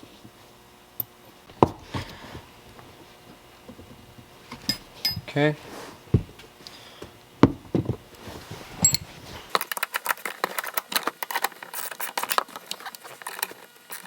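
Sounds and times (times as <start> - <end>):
dull handling knocks: 6.1 - 6.4, 7.4 - 8.0.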